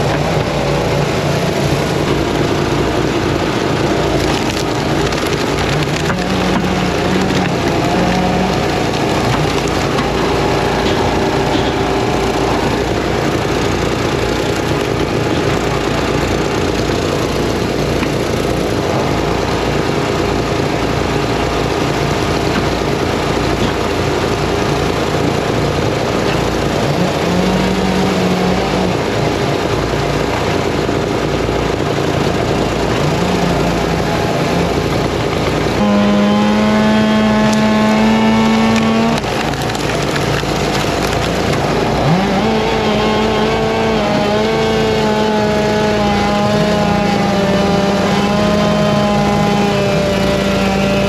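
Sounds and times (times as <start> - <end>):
chainsaws running: 0.0 - 51.0
steady engine note: 0.0 - 51.0
wood splitter engines: 0.0 - 51.0.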